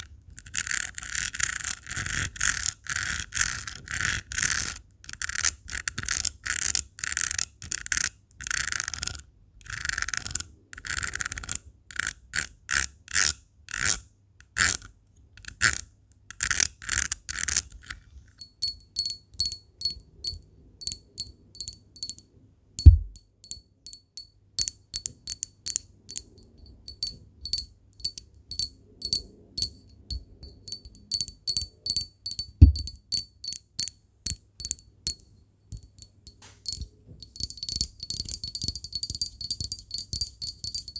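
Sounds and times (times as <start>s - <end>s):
dull thumps: 22.8s - 23.2s
rapid tapping on glass: 22.8s - 40.9s.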